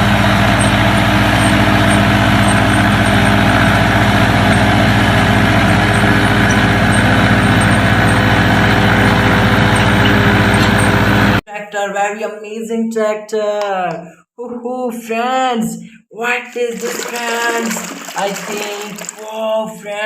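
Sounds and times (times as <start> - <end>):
steady engine drone: 0.0 - 11.4.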